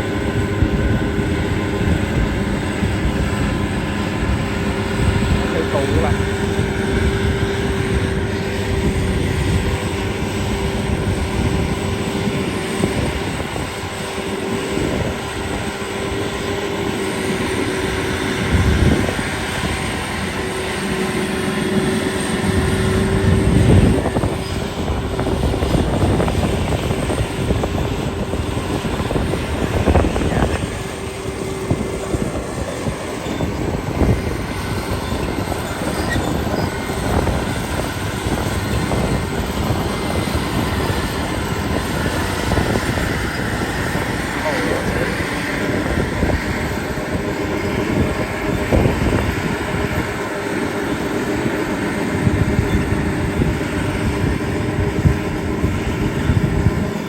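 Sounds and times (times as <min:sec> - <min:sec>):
combine harvester running: 0:00.0 - 0:57.0
diesel engine whine: 0:00.0 - 0:57.0.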